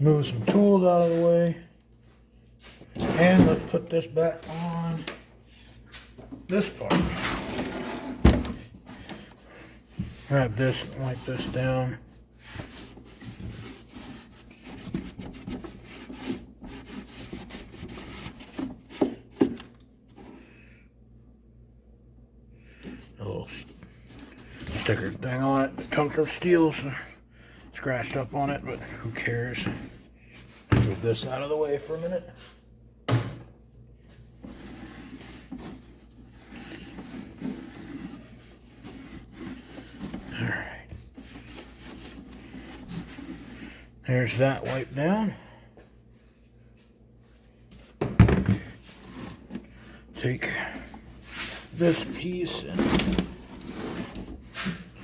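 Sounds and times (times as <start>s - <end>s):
rag rubbing and wiping: 10.0s - 19.3s, 34.4s - 45.3s.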